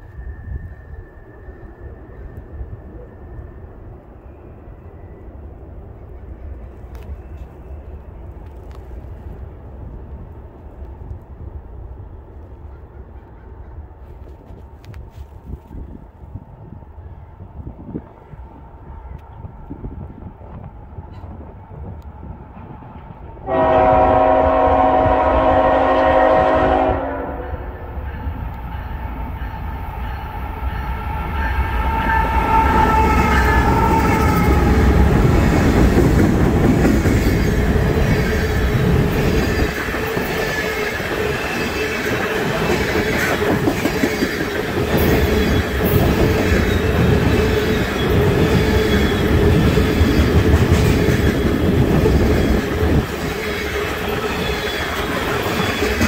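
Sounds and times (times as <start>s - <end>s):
train rumble: 0.0s - 56.0s
locomotive horn: 23.4s - 27.7s.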